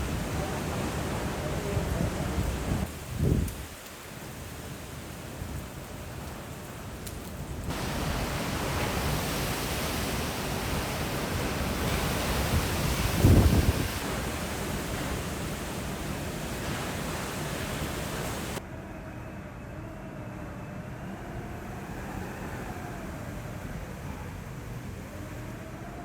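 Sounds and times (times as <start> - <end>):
loud wind gust: 0.0 - 3.8, 7.7 - 18.6
wind and rain roaring: 0.0 - 18.6, 21.3 - 26.0.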